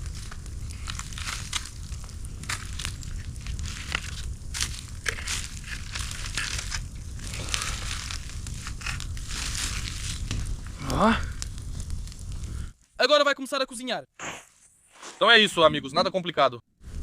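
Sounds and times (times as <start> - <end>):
low rumble: 0.0 - 12.7
crackling and crunching: 0.0 - 13.0.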